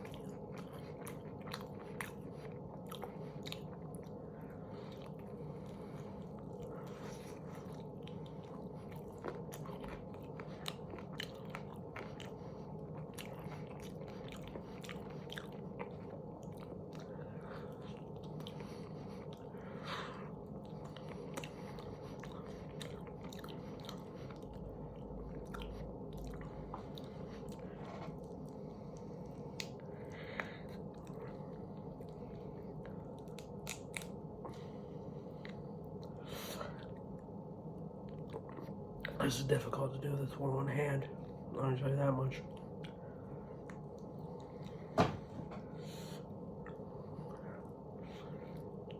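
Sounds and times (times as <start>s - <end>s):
chewing chicken wings: 0.0s - 37.0s, 38.0s - 39.6s
steady low hum: 0.0s - 48.9s.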